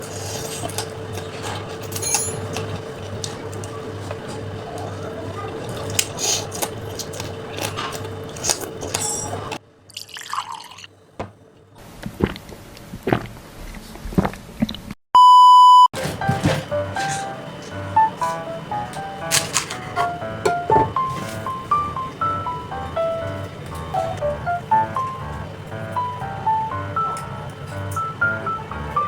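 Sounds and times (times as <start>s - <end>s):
loud steady beep tone: 15.2s - 15.9s
steady hum: 16.0s - 29.0s.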